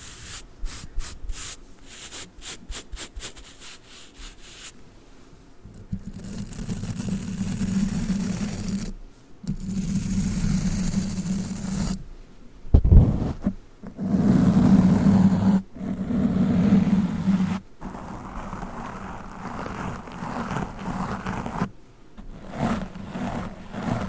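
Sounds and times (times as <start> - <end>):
brush scratching and rubbing: 0.0 - 4.8, 12.8 - 24.0.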